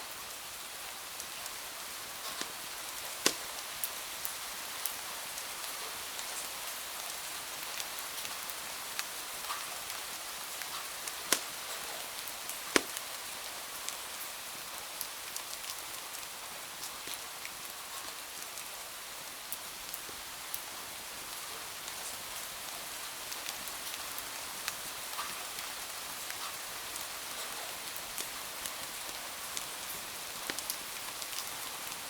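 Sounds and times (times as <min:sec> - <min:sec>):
steady rain: 0:00.0 - 0:32.0
wood fire crackling: 0:01.2 - 0:05.0, 0:09.8 - 0:14.0, 0:28.2 - 0:32.0.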